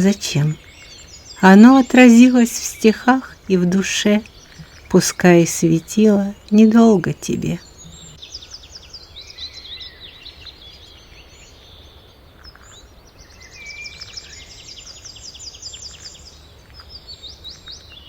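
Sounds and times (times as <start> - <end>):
songbirds singing: 0.0 - 18.0.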